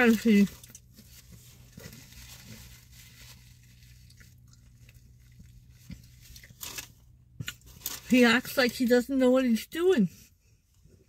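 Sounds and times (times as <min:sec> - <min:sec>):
person chewing: 0:00.6 - 0:08.1.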